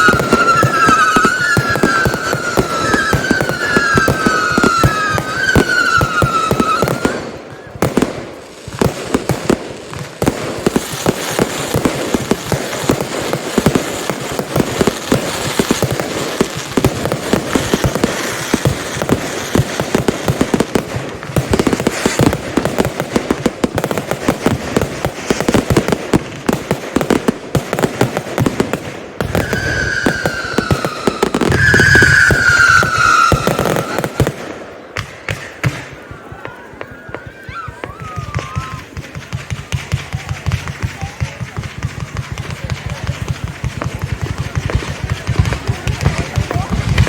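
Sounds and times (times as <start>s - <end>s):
descending firework whistle: 0.0s - 7.8s, 29.2s - 39.0s
fireworks bangs and crackle: 0.0s - 47.0s.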